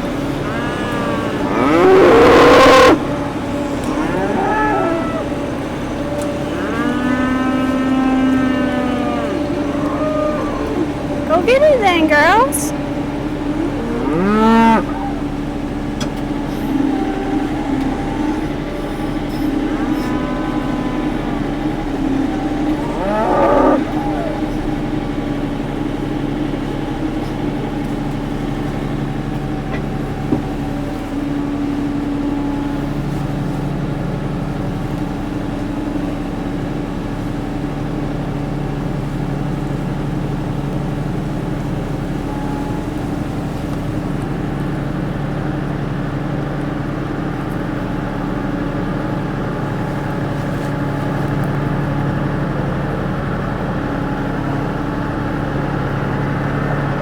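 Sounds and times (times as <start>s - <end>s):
tractor engine running: 0.0s - 42.4s
cow mooing: 0.1s - 25.9s.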